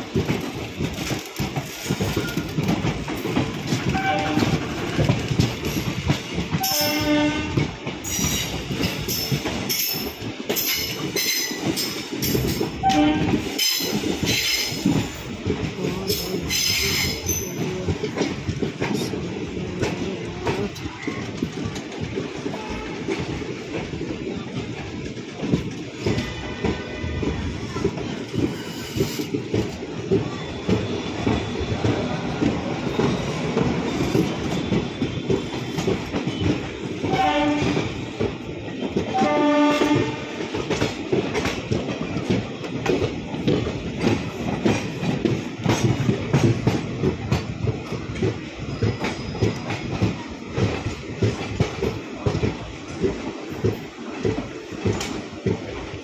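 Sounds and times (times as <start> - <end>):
train wheels clattering over joints: 0.0 - 56.0
train horn blasts: 3.9 - 4.9, 6.6 - 7.7, 12.8 - 13.6, 37.0 - 38.0, 39.1 - 40.4.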